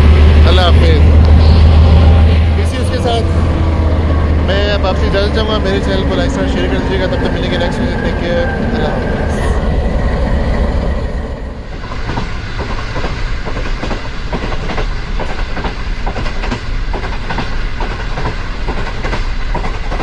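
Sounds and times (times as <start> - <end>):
low train rumble: 0.0 - 20.0
train wheels clicking over rail joints: 11.7 - 20.0.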